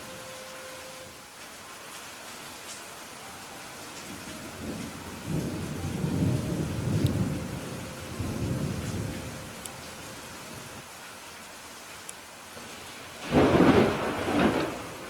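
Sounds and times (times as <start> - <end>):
steady rain: 0.0 - 15.0
thunder rolling: 4.0 - 10.8, 12.7 - 15.0.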